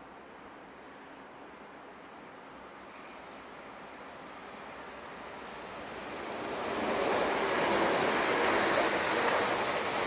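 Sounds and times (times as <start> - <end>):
train wheels rushing on rails: 2.8 - 10.0.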